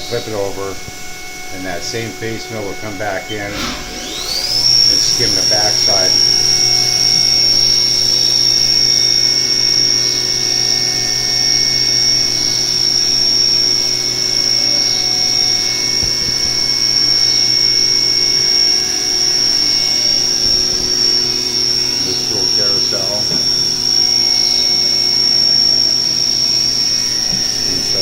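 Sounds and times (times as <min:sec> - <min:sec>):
high-pitched machine whine: 0:02.8 - 0:13.7
low machine hum: 0:03.0 - 0:06.9.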